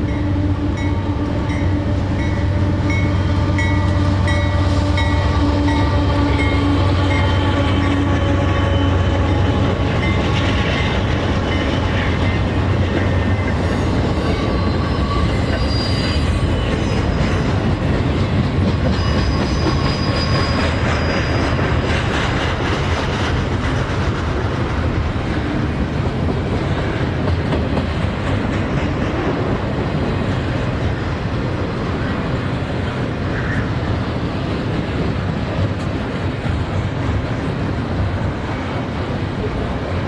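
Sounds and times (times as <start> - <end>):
train wheel squeal: 0.0 - 24.2, 32.9 - 34.0
freight train rolling past: 0.0 - 40.0.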